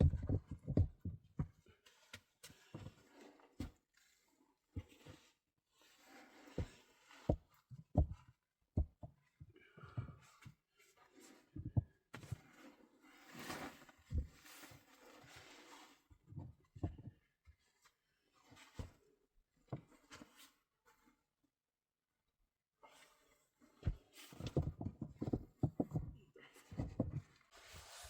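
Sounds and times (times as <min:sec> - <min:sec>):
soft thumps and knocks: 0:00.0 - 0:01.6, 0:07.3 - 0:08.2, 0:08.8 - 0:09.2, 0:11.6 - 0:12.0, 0:16.3 - 0:17.2, 0:23.8 - 0:27.4.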